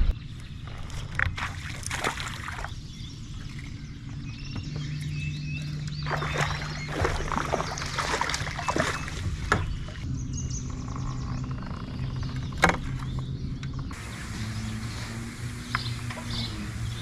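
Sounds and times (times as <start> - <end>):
low hum: 0.0 - 17.0
kayak splashing: 0.8 - 10.1, 13.9 - 17.0.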